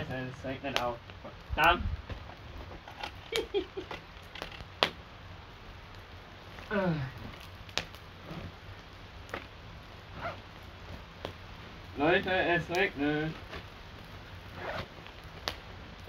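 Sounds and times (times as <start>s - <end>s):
campfire crackling: 0.0s - 16.0s
raindrops ticking: 0.0s - 16.0s
man muttering: 6.7s - 7.3s.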